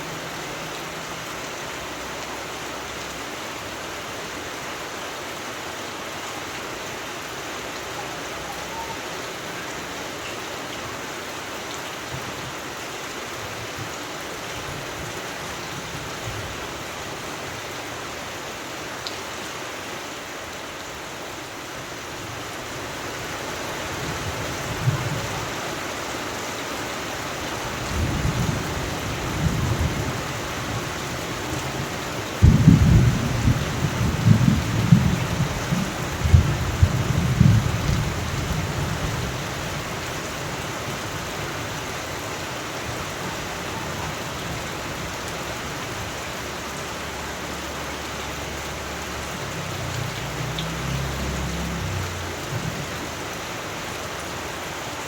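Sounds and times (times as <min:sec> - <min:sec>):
steady rain: 0:00.0 - 0:55.0
thunder rumbling: 0:27.9 - 0:39.8
loud thunderclap: 0:32.4 - 0:38.1.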